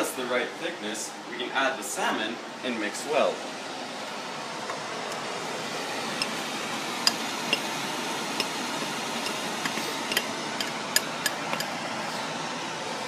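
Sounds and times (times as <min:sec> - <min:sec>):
steady hiss: 0:00.0 - 0:13.0
metal utensil clinking against pot: 0:09.2 - 0:11.7.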